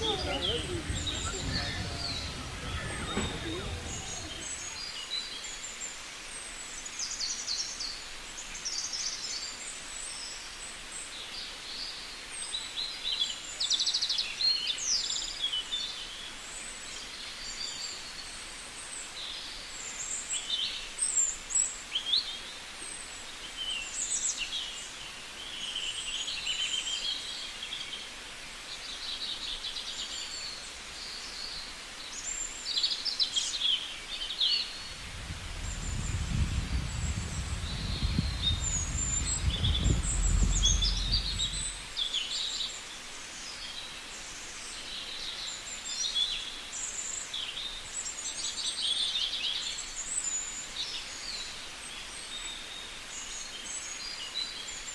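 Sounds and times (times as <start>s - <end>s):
outdoor hiss: 0.0s - 12.9s, 21.4s - 48.6s.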